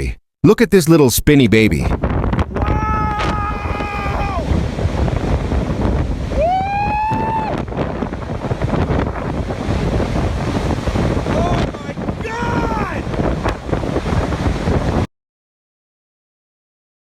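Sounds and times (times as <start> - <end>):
wind buffeting microphone: 1.8 - 15.1
person whooping: 2.5 - 4.5, 6.3 - 7.6, 12.3 - 13.0.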